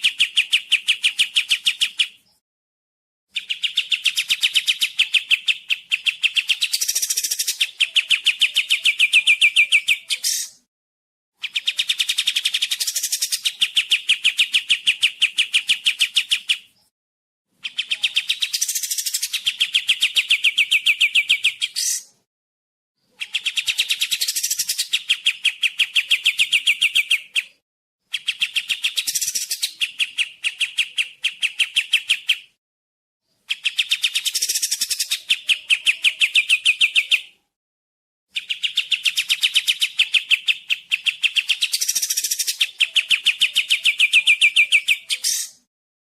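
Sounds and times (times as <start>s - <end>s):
songbird trilling: 3.4s - 10.6s, 17.6s - 22.1s, 23.2s - 27.6s, 38.4s - 45.6s.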